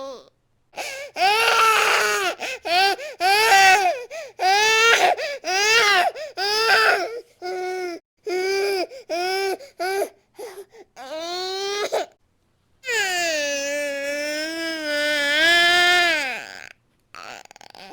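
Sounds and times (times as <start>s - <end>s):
baby crying: 0.0s - 10.1s, 12.9s - 17.9s
baby whimpering: 0.0s - 12.1s, 16.1s - 17.9s.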